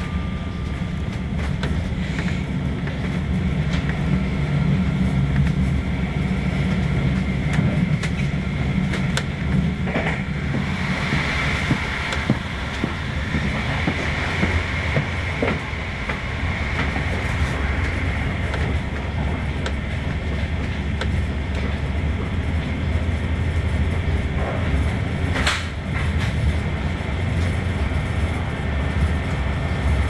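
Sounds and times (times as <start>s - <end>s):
train wheels rumbling on track: 0.0s - 30.0s
sharp clicks and knocks: 6.7s - 16.2s.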